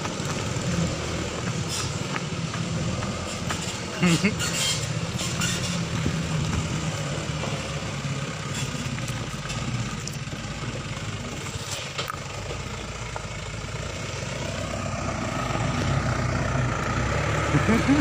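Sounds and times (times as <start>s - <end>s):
diesel truck engine running: 0.0s - 18.0s.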